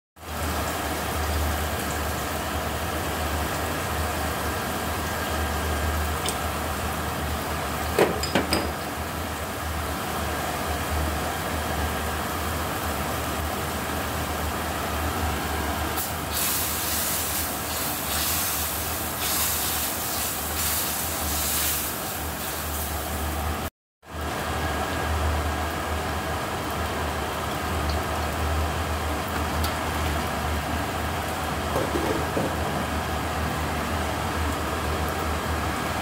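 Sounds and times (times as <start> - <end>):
paste sizzling in a wok: 16.0 - 23.5.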